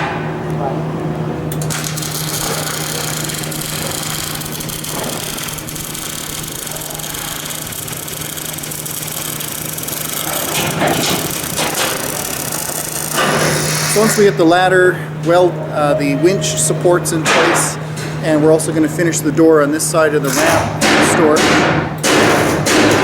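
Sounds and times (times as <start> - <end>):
low hum: 15.2 - 18.0.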